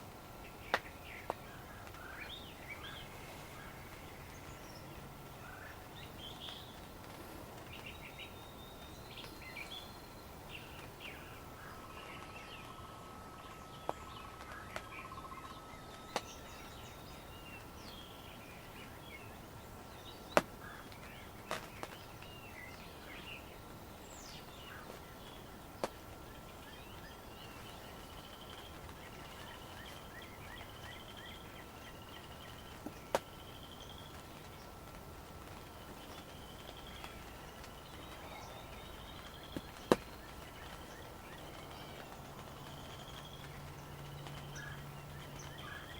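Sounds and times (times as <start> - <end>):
outdoor background hiss: 0.0 - 45.9
songbirds chirping and calling: 0.0 - 45.9
sharp single taps: 39.6 - 40.1.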